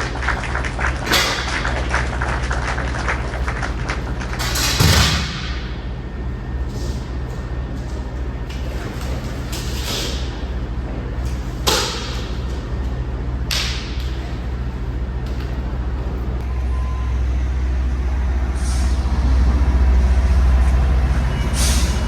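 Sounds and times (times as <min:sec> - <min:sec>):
truck diesel engine idling: 0:14.3 - 0:22.0
air brake hisses: 0:18.5 - 0:19.3, 0:21.4 - 0:22.0.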